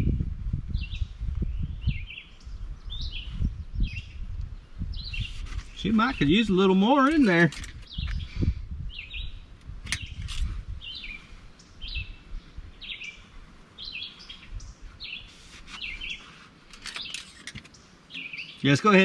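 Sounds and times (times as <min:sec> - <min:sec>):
songbird chirping: 0:00.7 - 0:19.0
sharp click: 0:09.6 - 0:10.5.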